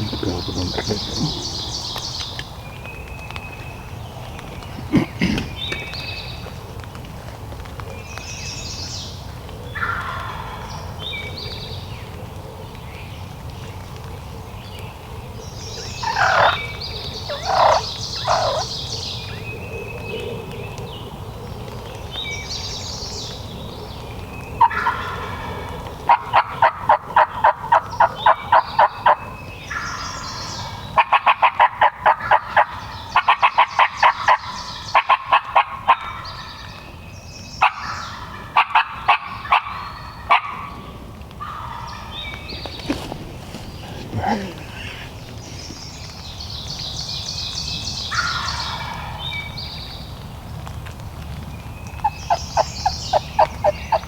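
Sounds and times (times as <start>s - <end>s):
small birds chirping: 0.0s - 7.0s, 7.6s - 31.0s, 41.4s - 54.0s
turkey gobbling: 9.8s - 10.6s, 15.9s - 18.7s, 24.6s - 29.9s, 31.0s - 36.4s, 37.6s - 40.8s, 41.4s - 45.6s, 48.2s - 49.2s, 52.0s - 54.0s
turkey yelps: 16.0s - 16.6s, 17.3s - 18.7s, 24.6s - 30.1s, 37.6s - 40.8s.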